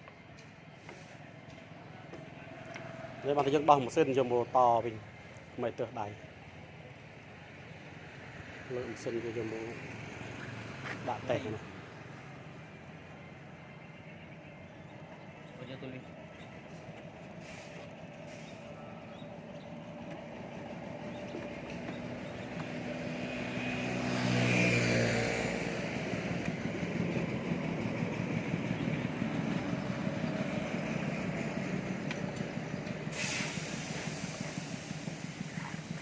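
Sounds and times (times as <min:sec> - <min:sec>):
motor vehicle passing: 0:07.8 - 0:15.0, 0:15.8 - 0:36.0.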